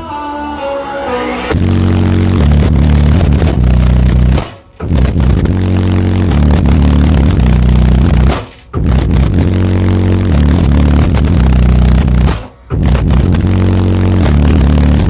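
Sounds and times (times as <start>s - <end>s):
bass-heavy music through car audio: 0.0s - 15.0s.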